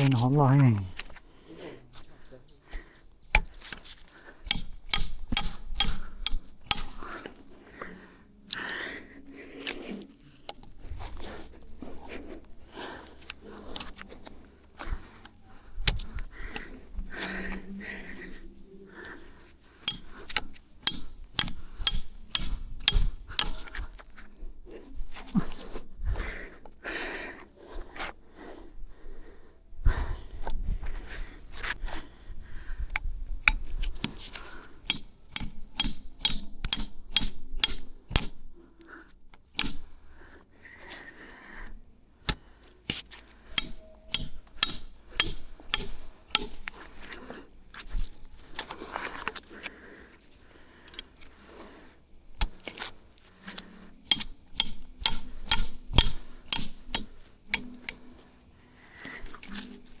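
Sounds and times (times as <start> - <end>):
tool striking sharp knocks: 4.4 - 7.0, 19.9 - 23.8, 34.8 - 38.4, 39.5 - 40.0, 43.5 - 46.7, 54.0 - 58.0.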